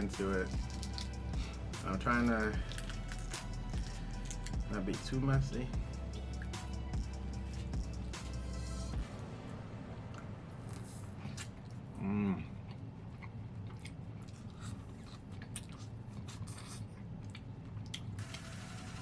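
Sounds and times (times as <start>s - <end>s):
man chewing with mouth clicks: 0.5s - 1.5s, 2.6s - 4.6s, 10.1s - 18.2s
man humming mm: 12.0s - 12.5s.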